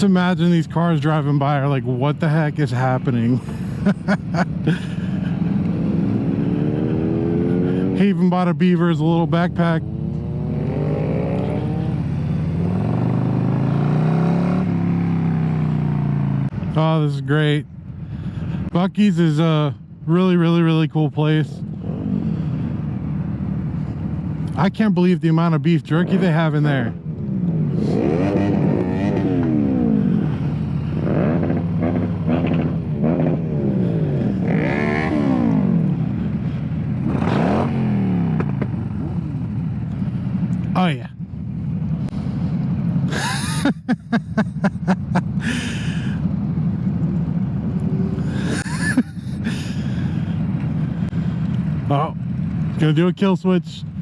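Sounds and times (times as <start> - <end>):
motorcycle engines revving: 0.0 - 17.6, 20.2 - 54.0
motorcycle engine accelerating: 4.6 - 8.2, 9.2 - 16.5, 26.0 - 40.2.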